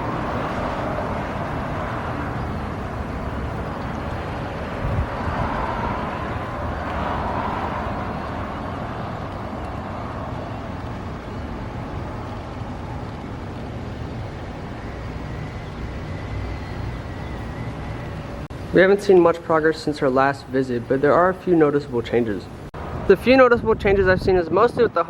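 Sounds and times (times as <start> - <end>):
vehicle passing by: 0.0 - 18.8
traffic noise: 0.0 - 25.0.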